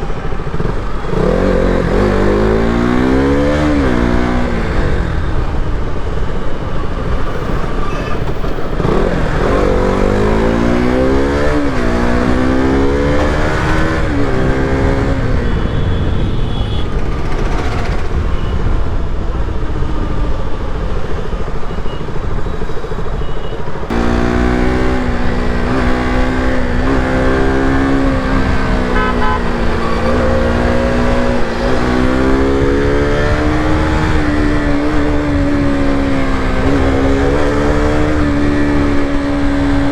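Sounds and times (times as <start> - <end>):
motorcycle engine accelerating: 0.0 - 5.9, 8.7 - 15.7, 23.9 - 39.9
wind and road noise: 0.0 - 39.9.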